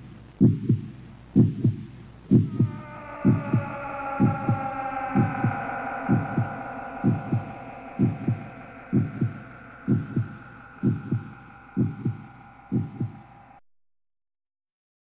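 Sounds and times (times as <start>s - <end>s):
heartbeat thumps: 0.0s - 13.5s
steady droning tone: 0.0s - 13.6s.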